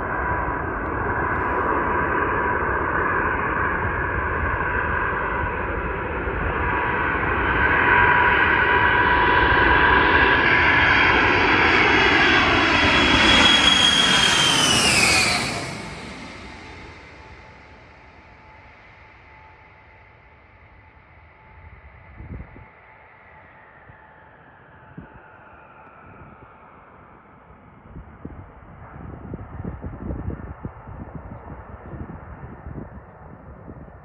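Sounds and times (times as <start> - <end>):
jet engine whine: 0.0 - 34.0
jet aircraft passing: 0.1 - 19.7.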